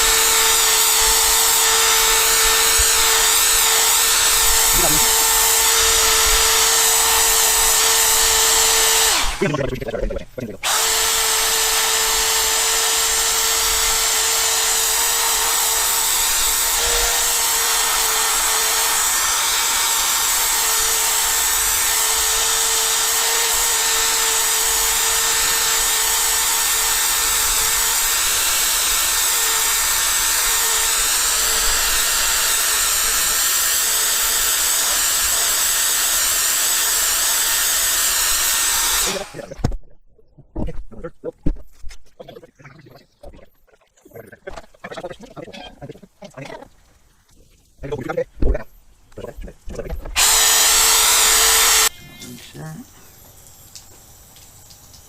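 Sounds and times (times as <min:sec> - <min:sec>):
electric drill sanding: 0:00.0 - 0:39.7, 0:49.2 - 0:51.9.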